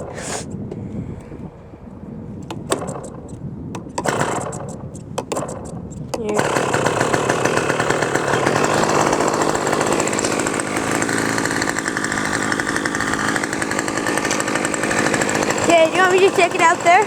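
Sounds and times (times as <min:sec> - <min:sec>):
model airplane engine buzzing: 0:00.0 - 0:17.0.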